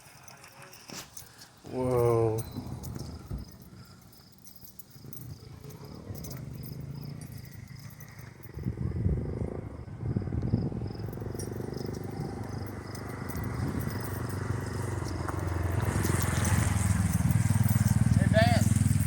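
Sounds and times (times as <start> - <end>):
crickets chirping: 0.0 - 19.0
car engine rumbling: 1.6 - 19.0.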